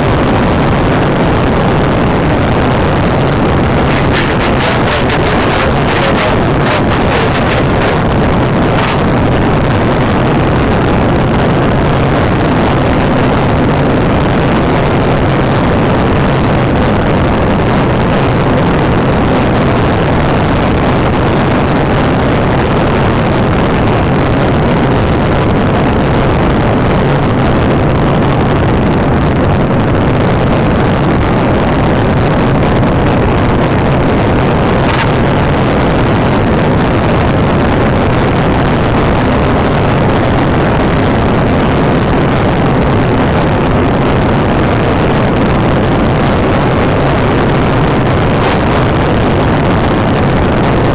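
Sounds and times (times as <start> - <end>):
loud car engine: 0.0 - 20.8, 33.4 - 36.3, 47.6 - 49.2
road and wind noise: 0.0 - 50.9.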